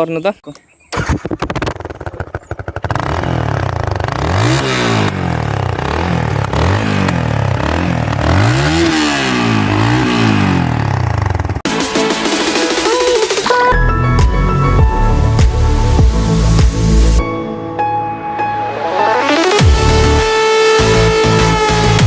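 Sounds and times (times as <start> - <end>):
motorcycle engine revving: 0.9 - 11.7, 19.3 - 22.0
motorcycle engine starting: 0.9 - 11.7.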